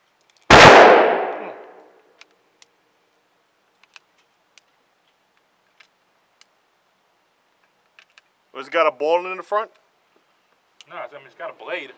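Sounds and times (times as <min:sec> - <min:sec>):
gunshot echo: 0:00.5 - 0:01.9
faint sharp clicks: 0:03.7 - 0:06.6.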